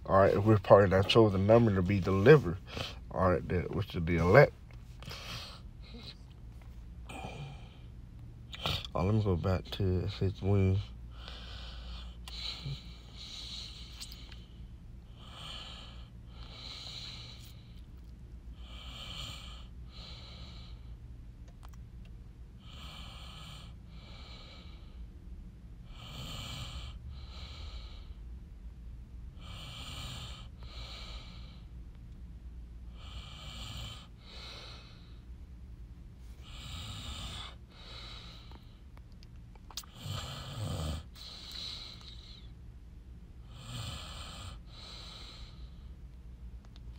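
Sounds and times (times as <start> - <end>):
faint low hum: 0.0 - 46.9
person breathing slowly: 11.0 - 17.8, 34.0 - 35.3, 36.3 - 38.8, 41.0 - 42.6, 44.5 - 45.9.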